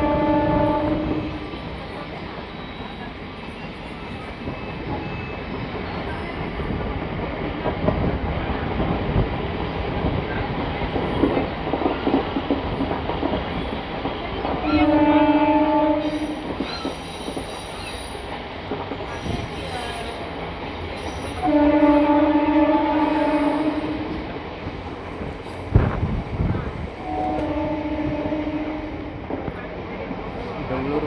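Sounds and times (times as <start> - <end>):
train horn blast: 0.0 - 1.5, 14.6 - 16.5, 21.4 - 24.2, 27.0 - 29.2
train rumbling on rails: 0.0 - 31.0.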